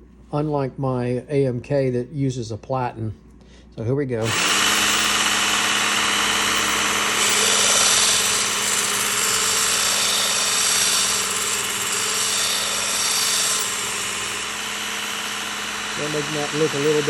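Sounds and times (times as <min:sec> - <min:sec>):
motor hum: 0:04.2 - 0:17.0.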